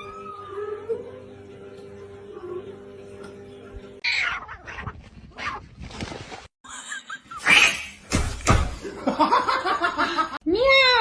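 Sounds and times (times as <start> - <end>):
pet crying: 4.0 - 5.6.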